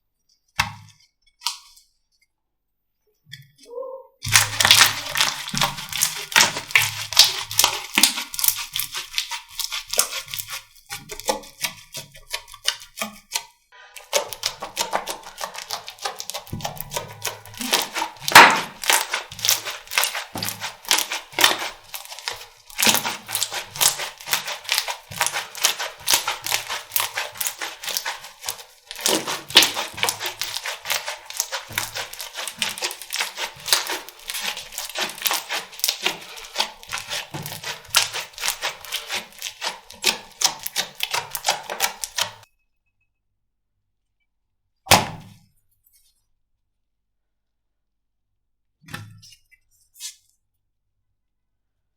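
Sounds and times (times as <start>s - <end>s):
slime squeezed by hand: 4.2s - 11.8s, 14.0s - 42.4s.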